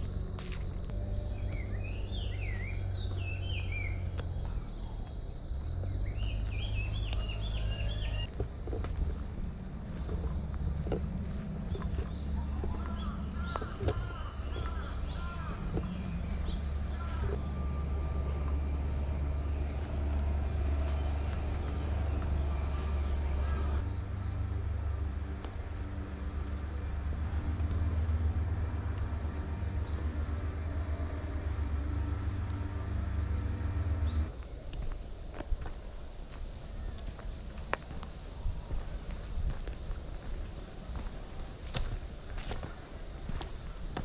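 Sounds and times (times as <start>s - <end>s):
low rumble: 0.0s - 34.4s
insects trilling: 0.0s - 44.0s
crow cawing: 12.4s - 17.4s, 22.6s - 23.8s.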